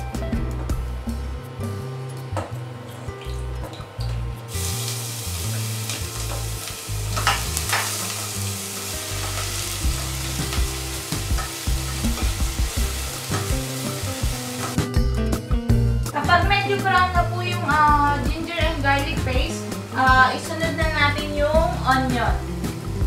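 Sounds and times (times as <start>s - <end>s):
paste sizzling in hot oil: 4.5s - 14.8s.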